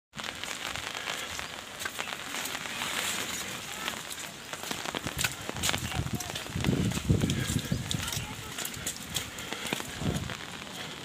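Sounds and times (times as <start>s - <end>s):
rain pattering on leaves: 0.1s - 11.0s.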